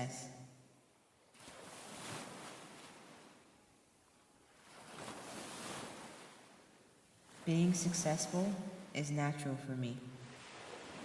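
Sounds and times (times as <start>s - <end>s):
ocean waves washing ashore: 1.3s - 3.6s, 4.4s - 9.0s, 10.2s - 11.0s.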